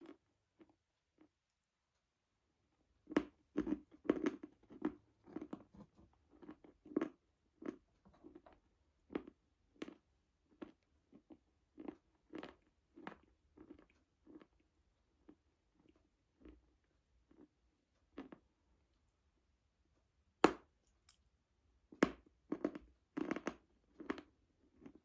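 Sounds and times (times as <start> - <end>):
person chewing crunchy chalk: 3.0 - 18.4, 22.5 - 25.0.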